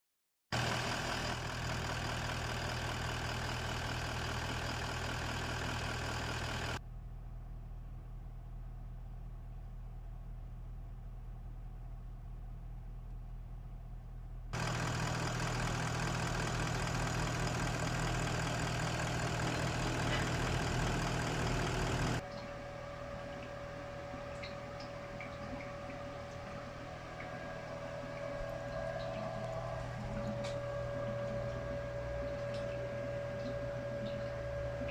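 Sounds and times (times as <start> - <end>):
engine idling: 0.6 - 6.8, 14.5 - 34.9
steady thin whine: 14.6 - 34.9.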